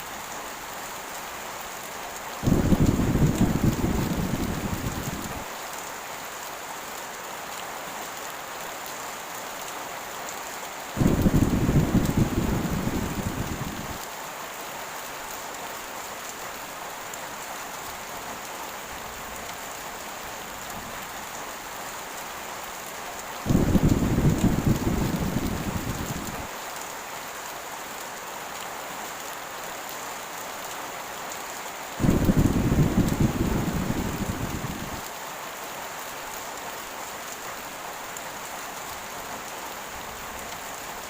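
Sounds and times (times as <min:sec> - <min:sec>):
heavy rain pouring: 0:00.0 - 0:41.0
thunder rumbling: 0:02.4 - 0:05.4, 0:11.0 - 0:14.0, 0:23.5 - 0:26.5, 0:32.0 - 0:35.0.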